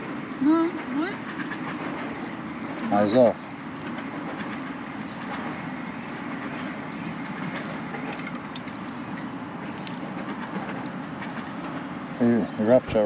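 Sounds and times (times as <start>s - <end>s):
faint clicks: 0.0s - 10.0s.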